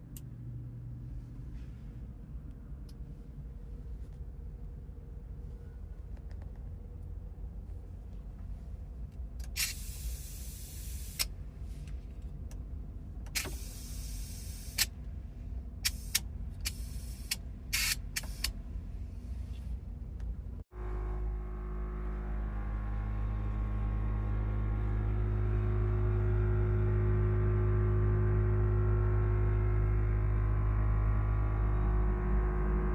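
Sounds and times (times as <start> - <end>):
low hum: 0.0 - 32.9
air suspension hissing: 9.5 - 11.8, 13.3 - 14.9, 15.8 - 18.5.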